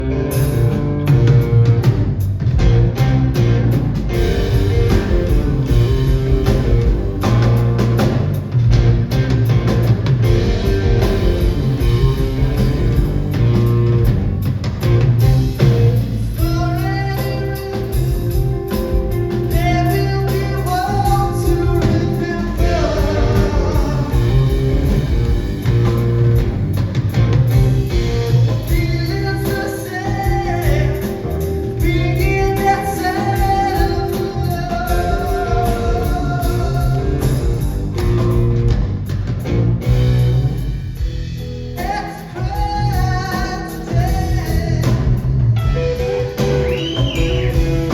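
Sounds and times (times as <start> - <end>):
bass and drums: 0.0 - 47.9
electric guitar: 0.0 - 47.9
person singing: 16.3 - 25.1, 28.5 - 37.8, 41.8 - 47.9.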